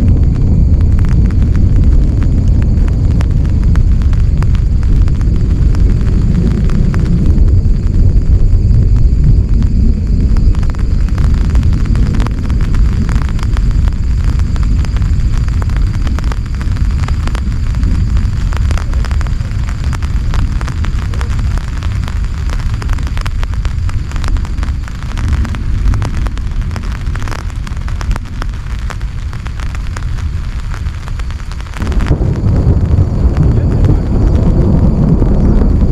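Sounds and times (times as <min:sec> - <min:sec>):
heavy rain falling: 0:00.0 - 0:35.9.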